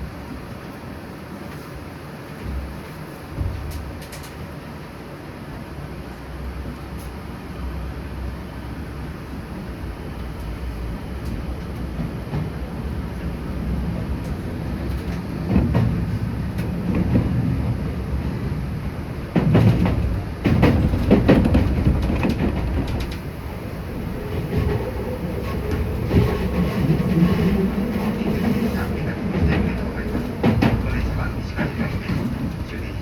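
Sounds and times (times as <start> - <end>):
electric train rumble: 0.0 - 33.0
wheel clicks over rail joints: 19.3 - 32.8.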